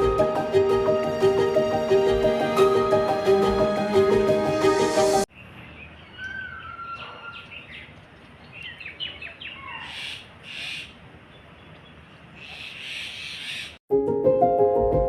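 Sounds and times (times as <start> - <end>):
birds whistling and chirping: 5.8 - 7.9.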